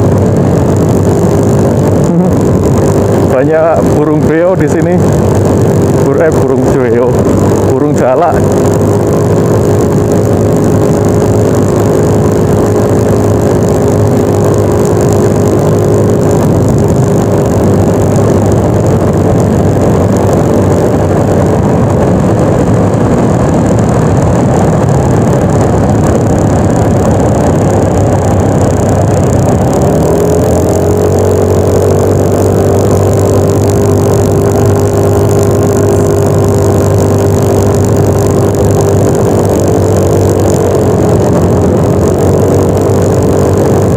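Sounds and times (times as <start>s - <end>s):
scooter engine cruising: 0.0s - 43.9s
wind and road noise: 0.0s - 43.9s.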